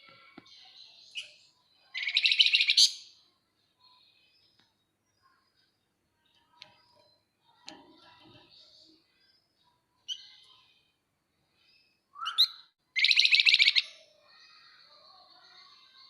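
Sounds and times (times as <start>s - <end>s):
faint high twittering: 0.4s - 16.0s
bird calling: 12.2s - 13.8s.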